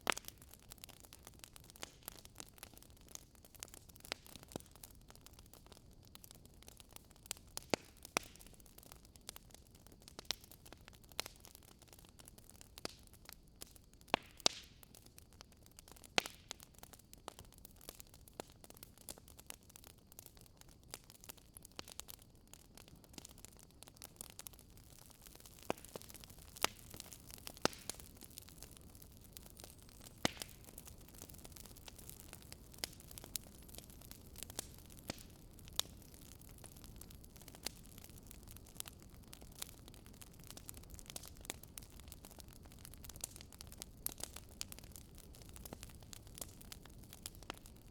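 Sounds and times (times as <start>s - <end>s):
logs popping and snapping: 25.5s - 28.0s.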